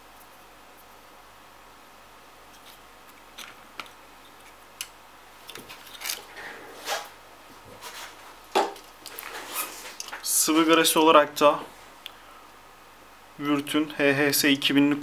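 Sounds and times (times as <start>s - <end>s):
clicks and handling noises: 2.5s - 7.1s.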